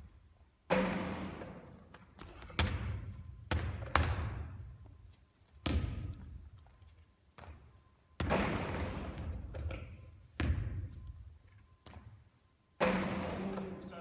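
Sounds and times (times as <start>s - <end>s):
basketball bouncing on hard court: 0.7s - 4.7s, 5.6s - 6.4s, 8.2s - 11.0s, 12.8s - 13.7s.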